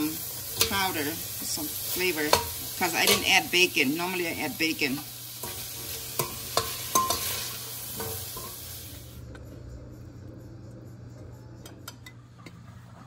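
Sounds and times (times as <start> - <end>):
beans sizzling in hot oil: 0.0 - 9.2
spoon clicking on a pan: 2.2 - 3.3, 6.2 - 7.4
metal spoon scraping a pot: 5.4 - 8.6.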